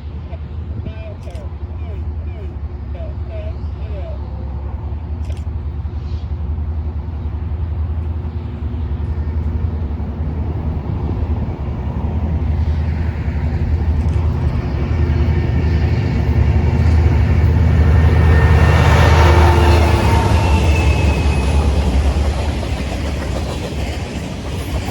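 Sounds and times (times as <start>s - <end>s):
diesel locomotive rumble: 0.0s - 24.9s
wheel and rail noise: 0.0s - 24.9s.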